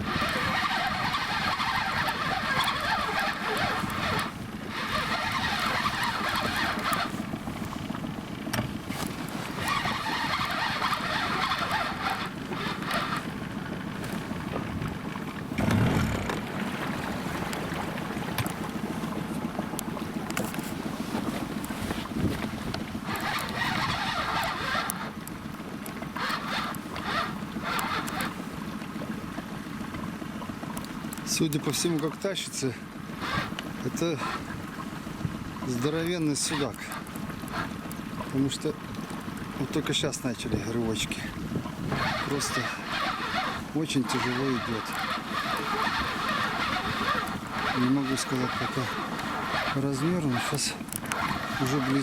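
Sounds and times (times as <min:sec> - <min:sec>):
fishing reel winding: 0:00.0 - 0:07.2, 0:09.6 - 0:13.3, 0:23.1 - 0:25.2, 0:26.2 - 0:28.4, 0:41.9 - 0:52.0
water chop: 0:00.0 - 0:52.0
wind: 0:00.0 - 0:52.0.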